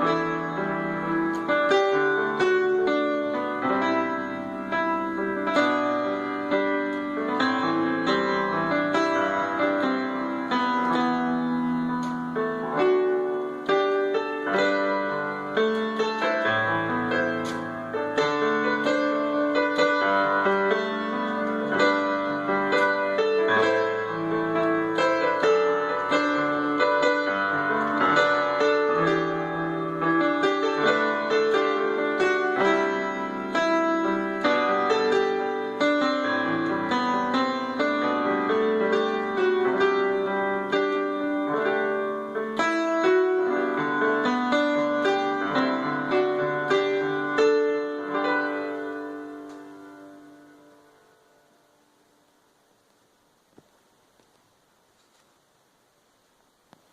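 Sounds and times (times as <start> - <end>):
piano playing: 0.0 - 52.1.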